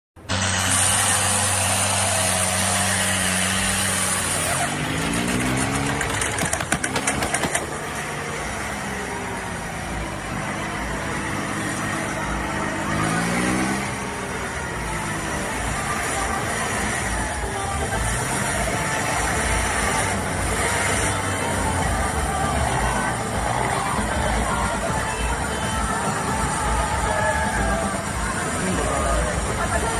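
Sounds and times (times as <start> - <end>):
tractor engine revving: 0.2 - 29.9.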